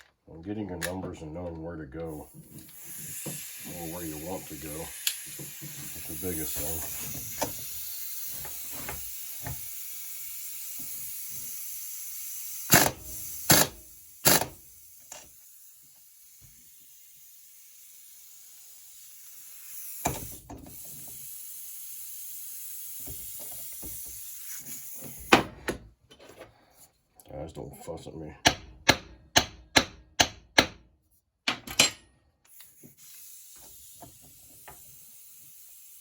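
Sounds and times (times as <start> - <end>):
steady high hiss: 2.2 - 12.7
metal tools clicking and knocking: 31.5 - 32.1.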